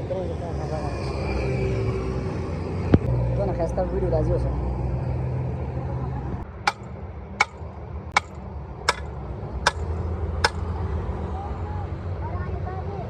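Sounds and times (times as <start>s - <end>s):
hammer strikes: 6.6s - 7.6s, 8.2s - 10.7s.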